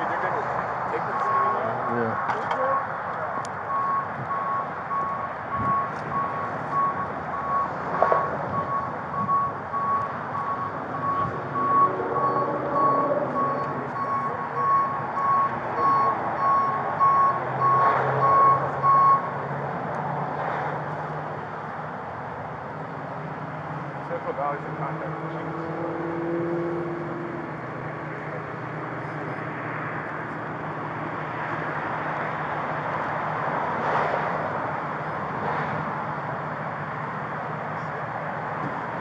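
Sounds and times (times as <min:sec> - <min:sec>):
reversing alarm beeping: 0:01.0 - 0:02.0, 0:03.7 - 0:19.4.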